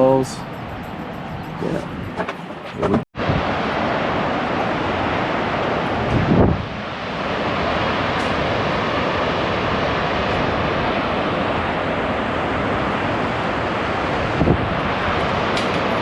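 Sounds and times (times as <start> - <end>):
wind buffeting microphone: 0.4 - 16.0
waterfall rushing: 3.2 - 16.0.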